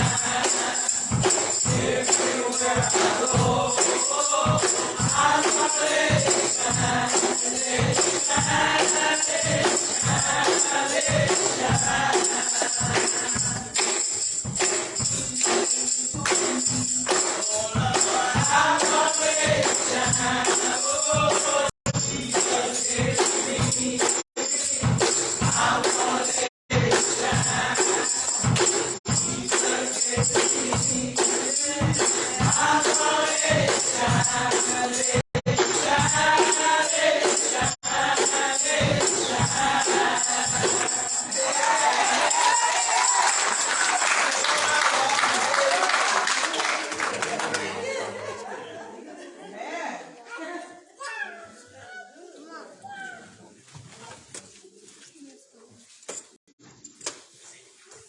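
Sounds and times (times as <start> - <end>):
gospel choir singing: 0.0 - 14.1, 15.1 - 46.1
tambourine: 0.0 - 46.1.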